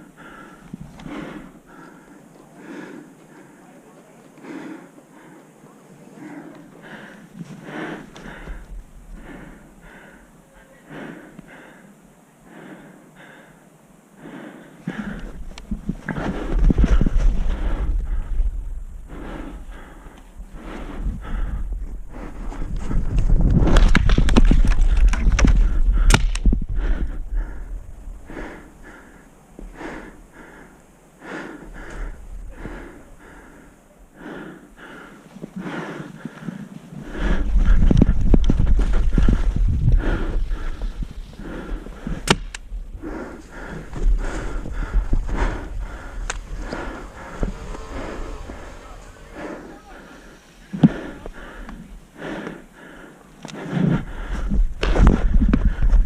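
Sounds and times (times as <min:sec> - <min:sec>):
person breathing hard: 0:00.0 - 0:23.7, 0:24.6 - 0:56.0
wind buffeting microphone: 0:15.0 - 0:29.0, 0:36.2 - 0:52.8, 0:53.7 - 0:56.0
footsteps: 0:35.3 - 0:52.7
rustling: 0:37.7 - 0:52.2.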